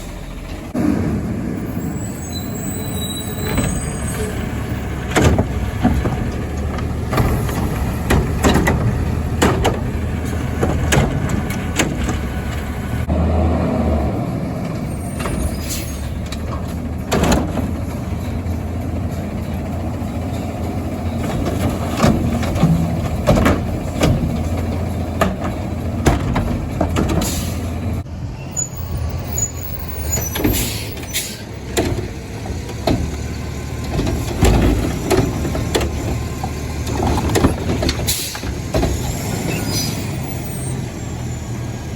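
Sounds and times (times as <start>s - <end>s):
garbage truck diesel engine: 0.0s - 41.9s
metal knocks and clanks: 3.4s - 12.8s, 15.1s - 27.8s, 31.7s - 39.7s.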